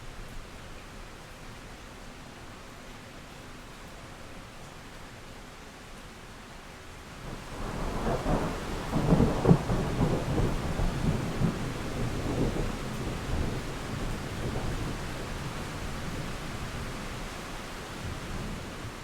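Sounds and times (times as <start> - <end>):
steady rain: 0.0 - 19.0
thunder rolling: 7.6 - 14.7.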